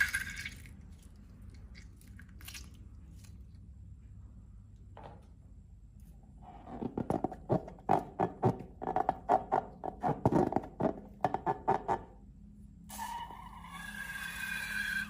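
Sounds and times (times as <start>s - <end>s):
slime squelching by hand: 0.2s - 3.7s.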